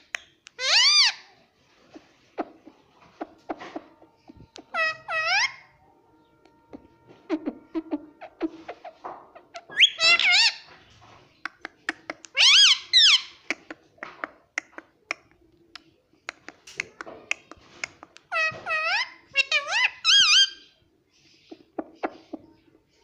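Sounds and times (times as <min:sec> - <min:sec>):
parrot squawking: 0:00.5 - 0:01.3, 0:02.4 - 0:05.8, 0:06.7 - 0:10.7, 0:11.6 - 0:13.8, 0:18.2 - 0:20.8
parrot clicks and mutters: 0:11.4 - 0:18.6.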